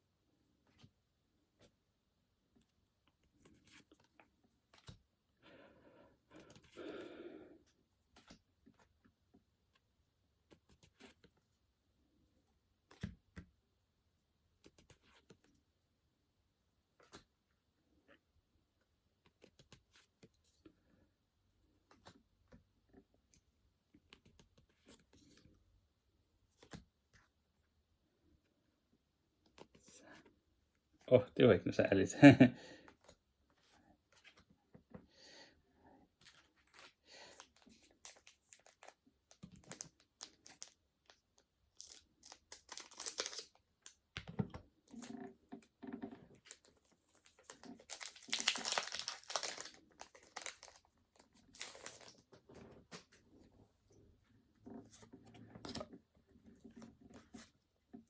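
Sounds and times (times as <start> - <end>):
soft rustle of cards: 2.5 - 13.5, 14.5 - 15.7, 16.9 - 18.2, 19.1 - 27.4, 29.4 - 31.2, 32.8 - 35.1, 36.0 - 58.0
trading cards rustling: 36.2 - 40.8, 41.8 - 44.0, 46.4 - 53.2.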